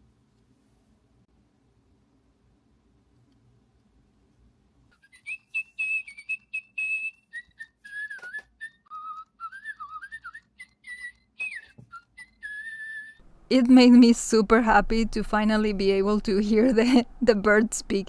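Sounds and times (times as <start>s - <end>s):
toy bird chirping: 5.0s - 13.2s.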